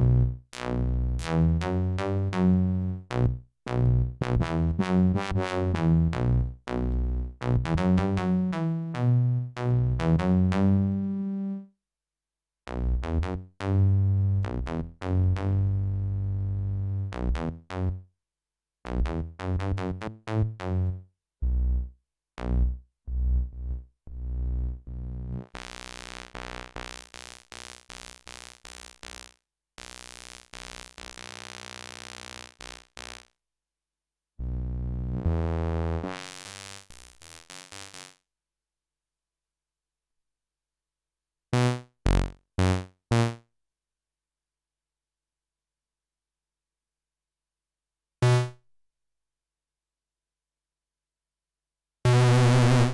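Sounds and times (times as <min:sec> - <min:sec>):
distorted synthesizer bass notes: 0:18.9 - 0:33.3, 0:34.4 - 0:38.2, 0:41.6 - 0:43.4, 0:52.1 - 0:52.9.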